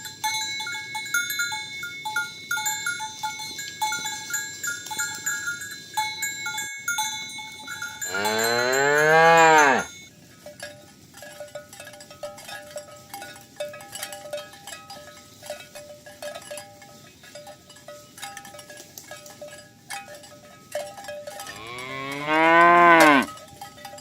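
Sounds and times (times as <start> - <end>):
cowbells clanking: 0.0 - 24.0
cow mooing: 8.1 - 9.9, 21.5 - 23.3.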